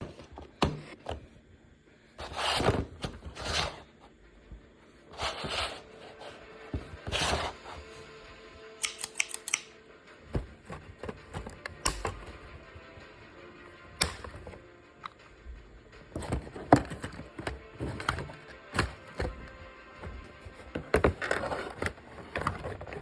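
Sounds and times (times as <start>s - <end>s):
rustling plastic and cardboard: 5.0s - 8.0s, 10.3s - 13.0s, 16.0s - 23.0s
sharp clicks: 8.8s - 9.7s.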